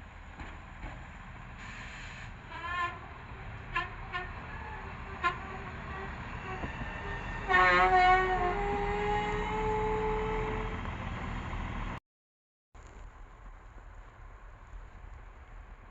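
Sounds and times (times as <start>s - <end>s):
train rumbling: 0.0s - 12.0s
train horn blasts: 1.7s - 3.1s, 3.7s - 10.8s.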